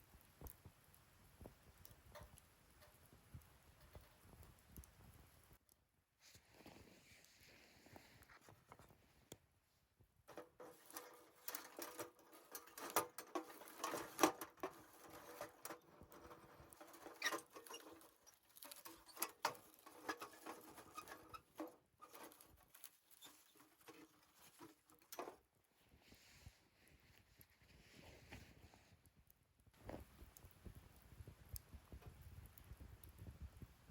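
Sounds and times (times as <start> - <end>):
wood fire crackling and popping: 0.0 - 5.8, 10.0 - 25.5, 29.2 - 33.9.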